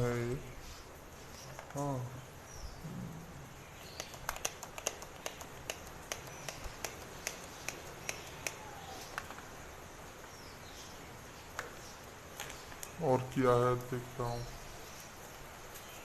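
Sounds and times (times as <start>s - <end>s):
faint bird chirps: 0.0s - 16.0s
plastic parts clicking and tapping: 3.9s - 9.5s.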